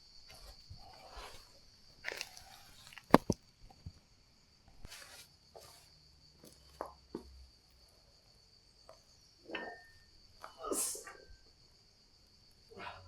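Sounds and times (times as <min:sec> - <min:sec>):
crickets chirring: 0:00.0 - 0:13.0
rustles: 0:04.8 - 0:06.0.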